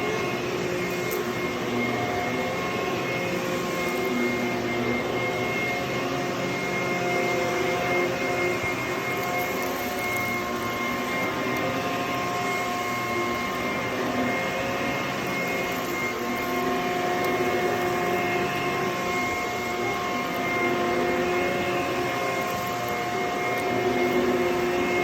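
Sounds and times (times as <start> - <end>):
vacuum cleaner motor whine: 0.0 - 25.0.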